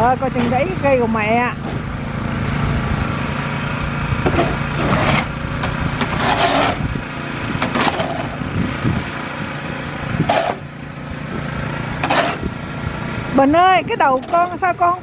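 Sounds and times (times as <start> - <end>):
snowblower engine running: 0.0 - 15.0
short scraping noises: 4.3 - 5.4, 6.0 - 6.9, 12.0 - 12.5.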